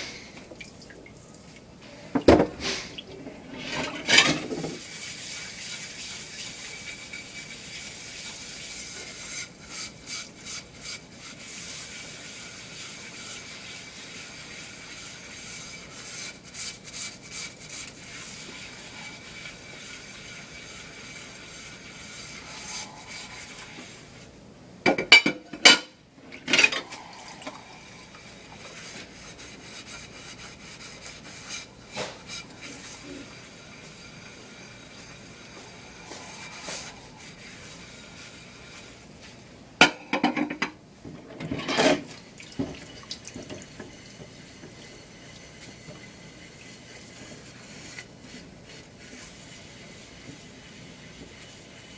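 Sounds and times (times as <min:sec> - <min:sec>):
running water hissing: 0:00.0 - 0:24.3, 0:26.5 - 0:39.4
scrubbing strokes: 0:02.6 - 0:24.4, 0:26.5 - 0:39.6, 0:41.5 - 0:51.9
dishes clattering: 0:03.6 - 0:04.8, 0:24.9 - 0:26.9, 0:39.8 - 0:43.7.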